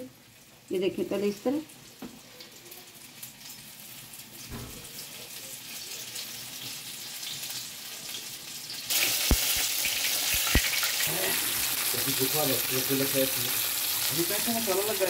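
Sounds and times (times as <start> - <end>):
chicken deep-frying in oil: 0.0 - 15.0
faint hiss with crackles: 5.1 - 15.0.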